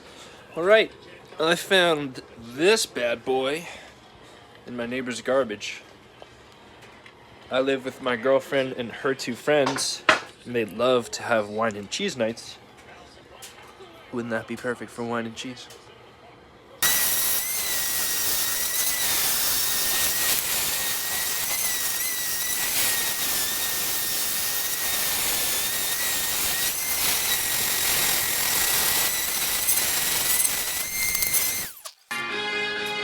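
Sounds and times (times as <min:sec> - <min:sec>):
power tool whining on wood: 0:16.8 - 0:32.2.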